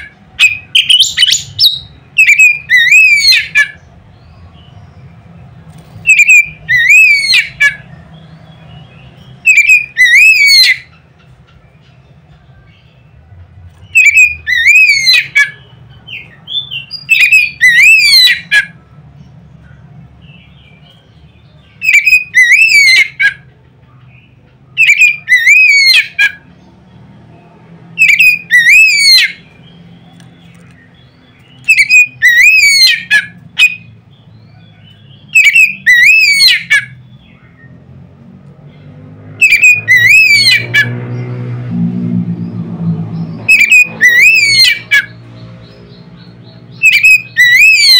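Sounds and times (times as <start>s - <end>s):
bird song with sharp sweeping notes: 0.0s - 47.9s.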